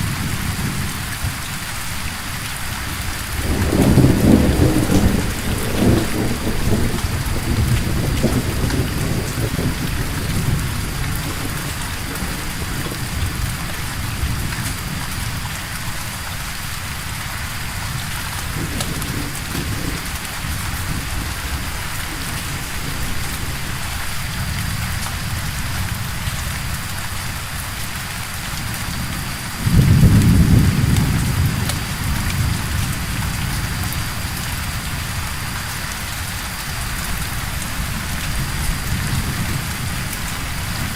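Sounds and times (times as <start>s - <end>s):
steady rain falling: 0.0s - 40.9s
low thunder rumbling: 2.9s - 16.2s, 17.5s - 27.2s, 28.6s - 35.6s, 37.1s - 40.9s
loud thunder clap: 3.4s - 14.8s, 29.0s - 33.6s.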